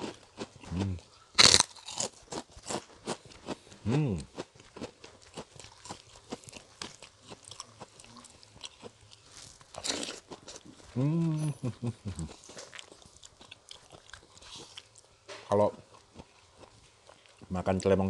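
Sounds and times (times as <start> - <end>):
cracker being bitten and chewed: 0.0 - 11.0, 12.0 - 15.2
person humming mmm: 0.7 - 1.1, 3.8 - 4.3, 10.9 - 12.4.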